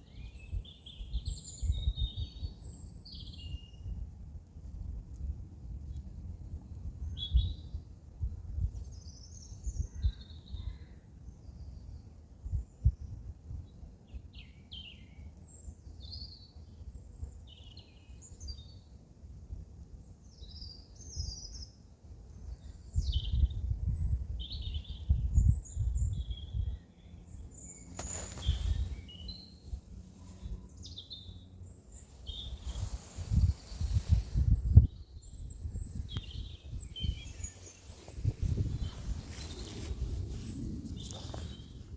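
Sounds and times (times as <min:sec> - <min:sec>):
small birds chirping: 0:20.2 - 0:41.9
low rumble in gusts: 0:28.1 - 0:41.9.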